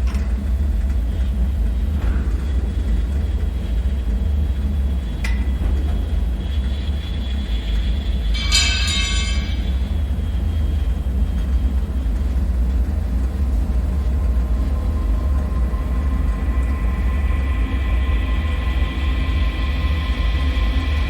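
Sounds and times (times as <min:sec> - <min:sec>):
deep rumbling drone: 0:00.0 - 0:21.0
faint high whining tones: 0:01.1 - 0:12.4
metallic ring: 0:08.3 - 0:10.1.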